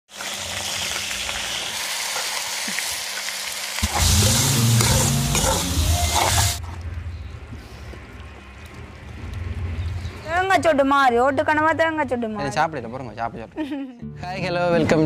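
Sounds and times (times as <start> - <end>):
food sizzling in hot oil: 0.1 - 6.6
metal spoon scraping a wok: 4.3 - 6.6.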